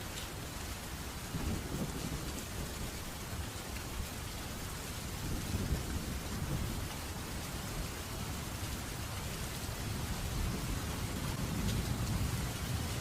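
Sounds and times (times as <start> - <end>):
steady rain hiss: 0.0 - 13.0
low thunder rumbling: 5.2 - 7.0, 9.7 - 13.0.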